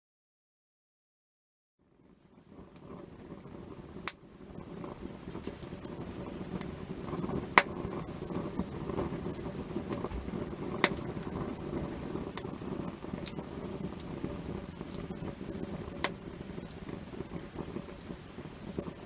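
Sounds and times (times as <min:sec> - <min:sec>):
campfire crackling: 0:01.9 - 0:19.0
sharp loud pops from fire: 0:02.7 - 0:19.0.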